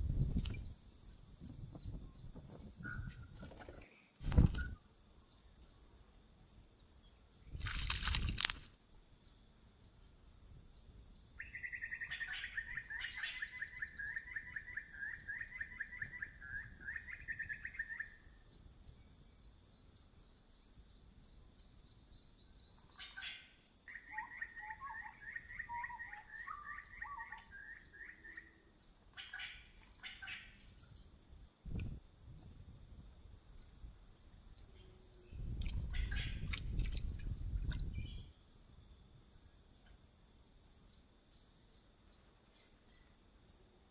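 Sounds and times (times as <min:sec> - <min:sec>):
high regular bird chirping: 0:00.0 - 0:43.7
bird trills: 0:09.6 - 0:43.7.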